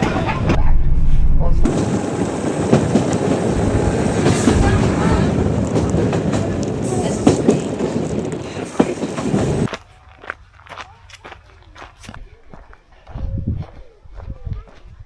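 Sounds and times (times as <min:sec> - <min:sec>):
train rumbling and rattling on track: 0:00.0 - 0:09.7.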